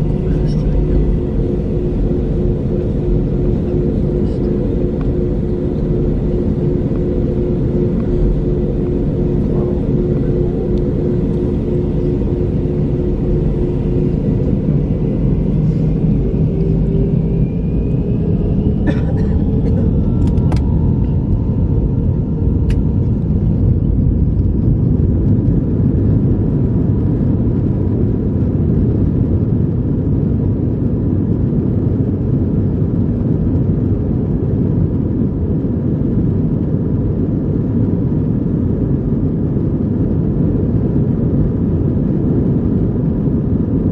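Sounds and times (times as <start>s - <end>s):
jet engines spooling up: 0.0s - 26.1s.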